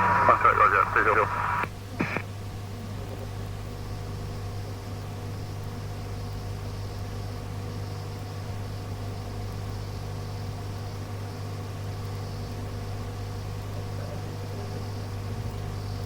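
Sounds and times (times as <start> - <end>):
radio static hiss: 0.0 - 2.3
constant low hum: 0.0 - 9.8.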